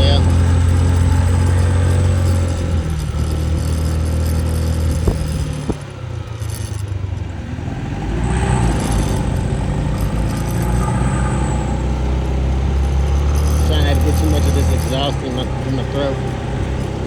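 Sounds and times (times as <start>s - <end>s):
motor scooter engine: 0.0s - 17.0s
road noise: 0.0s - 17.0s.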